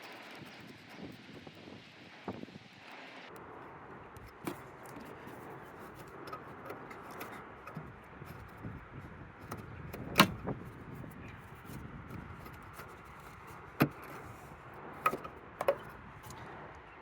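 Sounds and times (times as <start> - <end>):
plastic clip clicking and rattling: 9.4 - 14.3.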